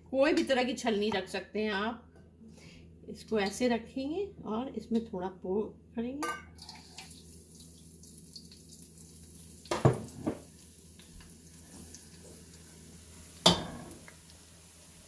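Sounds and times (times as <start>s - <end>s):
batter sizzling in oil: 6.6s - 15.0s.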